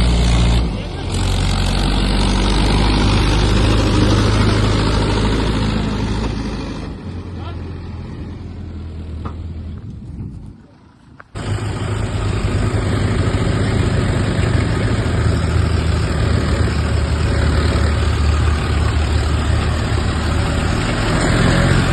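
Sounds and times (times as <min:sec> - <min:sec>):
tractor engine running: 0:00.0 - 0:21.9.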